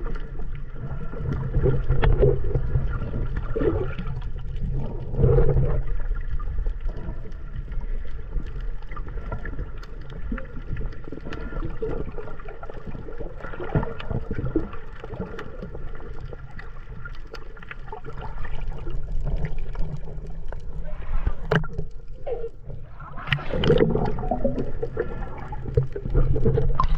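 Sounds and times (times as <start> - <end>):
small splashes and clicks: 0.0 - 26.9
water sloshing and gurgling: 0.0 - 26.9.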